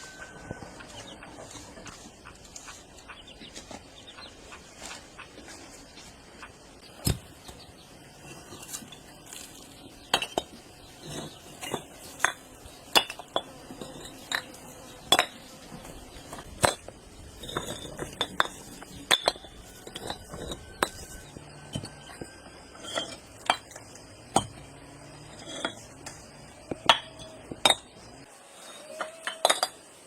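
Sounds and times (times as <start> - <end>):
dishes and utensils clinking: 28.9 - 29.9.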